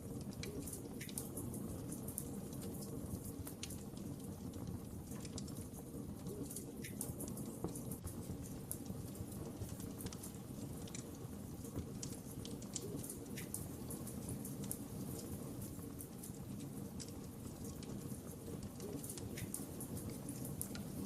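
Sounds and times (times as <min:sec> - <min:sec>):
fire crackling and popping: 0:00.0 - 0:21.0
fire flames rumbling: 0:00.0 - 0:21.0.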